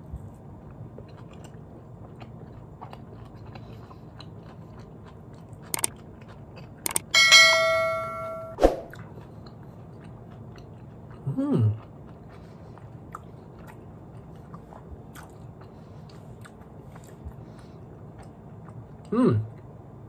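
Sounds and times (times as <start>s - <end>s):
person chewing: 0.2s - 7.2s, 8.9s - 19.7s
wet mouth clicks: 5.7s - 6.0s, 6.8s - 7.1s
sharp click: 6.9s - 7.1s
person humming mm: 11.3s - 11.8s, 19.1s - 19.5s.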